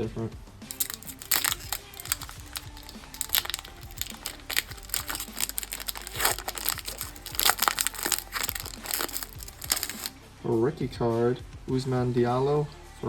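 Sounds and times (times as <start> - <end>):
foil card wrapper crinkling: 0.7 - 10.1
trading cards handled: 0.7 - 10.1.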